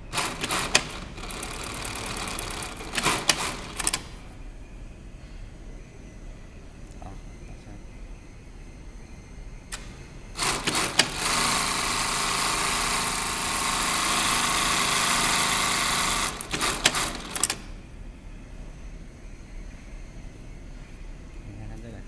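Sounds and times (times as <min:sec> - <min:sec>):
sewing machine running: 0:00.0 - 0:04.1, 0:10.4 - 0:17.6.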